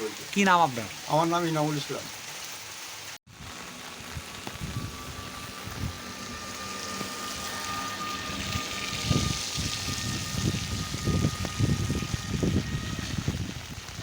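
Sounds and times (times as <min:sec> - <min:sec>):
steady rain falling: 0:00.0 - 0:14.0
thin steady whine: 0:03.3 - 0:14.0.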